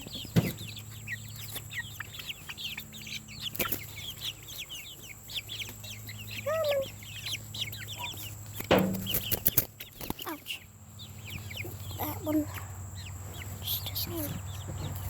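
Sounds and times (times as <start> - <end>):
chicks peeping: 0.0 - 15.0
sharp knock: 8.7 - 9.2.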